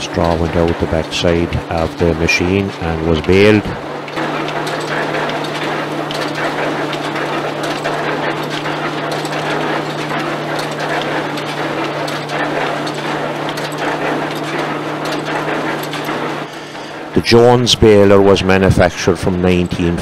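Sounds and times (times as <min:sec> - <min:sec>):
rattle and clatter of machinery: 0:00.0 - 0:20.0
threshing mill humming: 0:00.0 - 0:20.0.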